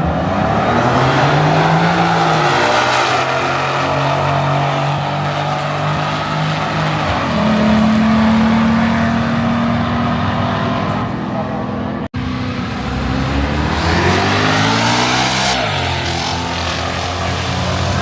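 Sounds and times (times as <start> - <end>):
racing car engines revving: 0.0 - 18.0.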